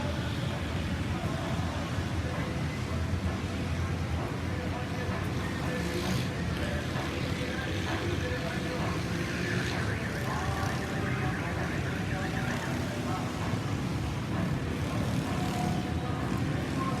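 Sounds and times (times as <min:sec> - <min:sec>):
traffic engines rumbling: 0:00.0 - 0:17.0.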